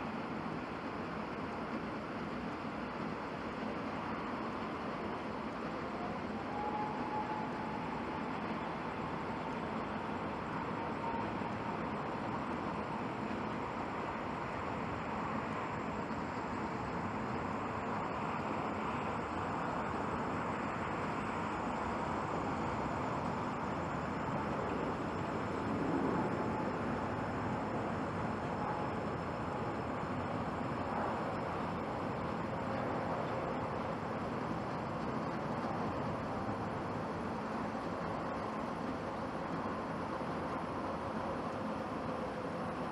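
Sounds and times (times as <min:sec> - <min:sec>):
jet engines roaring: 0:18.0 - 0:37.4.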